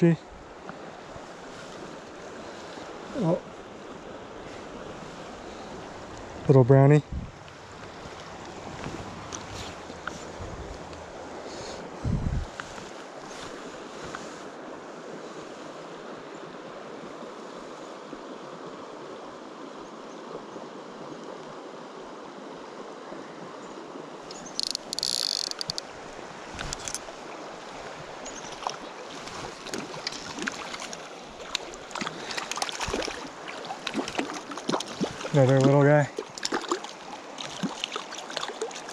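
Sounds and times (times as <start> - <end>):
river flowing: 0.0 - 38.9
water splashing: 7.3 - 11.9, 24.2 - 38.9.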